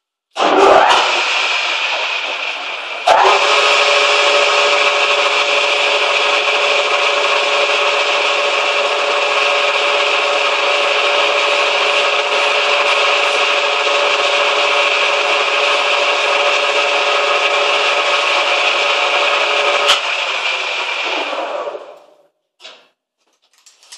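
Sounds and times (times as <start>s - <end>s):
metal lathe machine whine: 0.4s - 22.1s.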